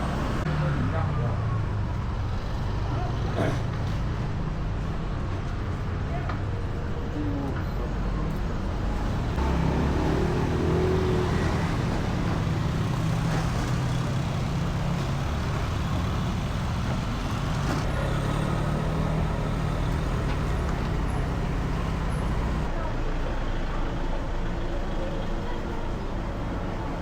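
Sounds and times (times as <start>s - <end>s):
road noise: 0.0s - 27.0s
vehicle engine running: 8.6s - 22.8s.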